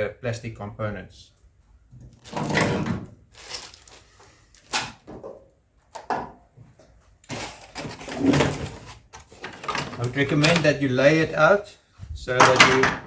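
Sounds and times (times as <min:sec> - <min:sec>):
sharp knocks of hard pieces: 0:12.4 - 0:13.0.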